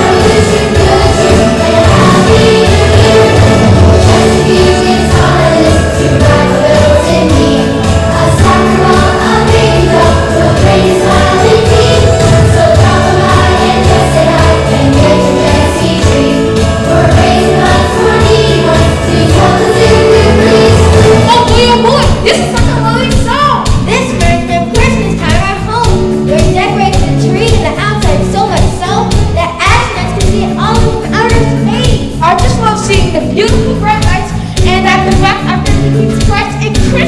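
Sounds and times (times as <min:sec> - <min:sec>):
choir singing: 0:00.0 - 0:21.6
instrumental backing with bass: 0:00.0 - 0:37.0.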